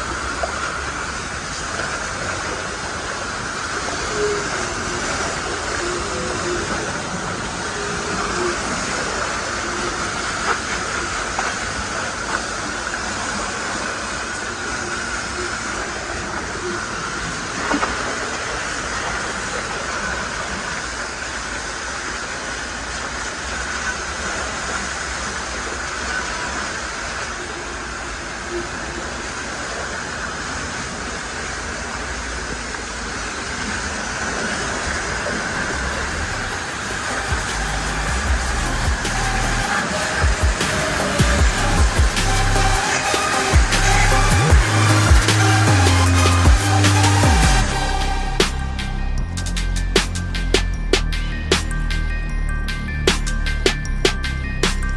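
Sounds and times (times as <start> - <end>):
low machine drone: 0.0 - 29.8, 31.8 - 54.9
pressure washer spraying water: 35.1 - 52.1.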